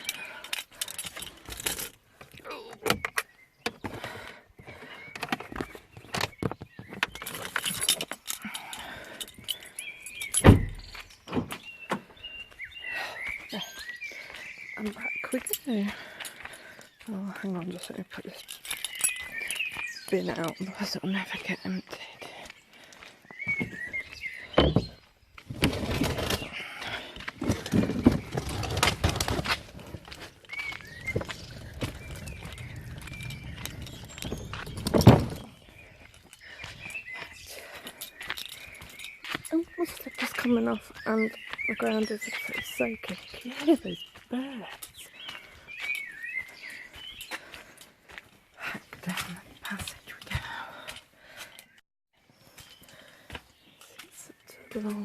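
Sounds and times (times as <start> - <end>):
keys jangling: 0.0 - 2.0, 7.2 - 11.0, 17.9 - 19.7
birds chirping: 0.0 - 55.0
car door shutting with thud: 10.4 - 11.5
wheelie bin wheels rolling: 24.8 - 36.0.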